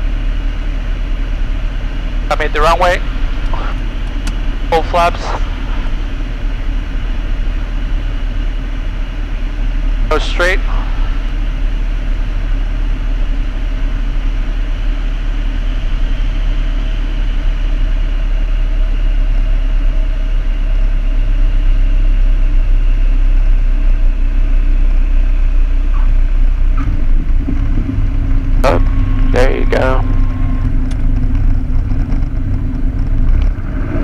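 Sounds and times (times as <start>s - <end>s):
airflow noise: 0.0s - 16.6s, 25.8s - 34.0s
aircraft engine idling: 0.0s - 34.0s.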